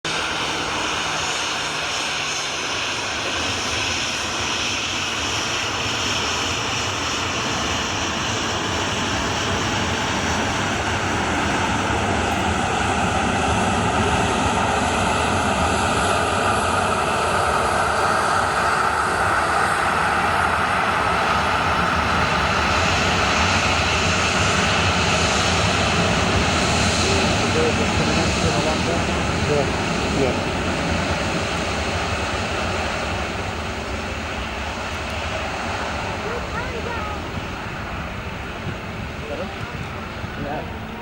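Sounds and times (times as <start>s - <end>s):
jet engine rushing drone: 0.0s - 41.0s.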